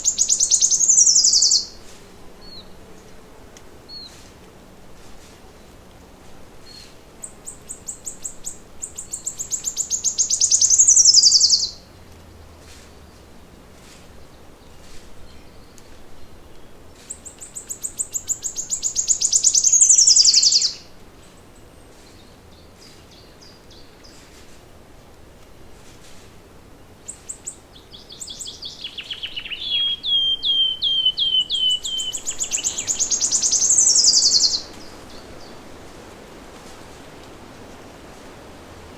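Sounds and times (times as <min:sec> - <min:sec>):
songbird singing trill: 0:00.0 - 0:02.8, 0:06.6 - 0:11.9, 0:14.2 - 0:24.2, 0:26.9 - 0:35.8.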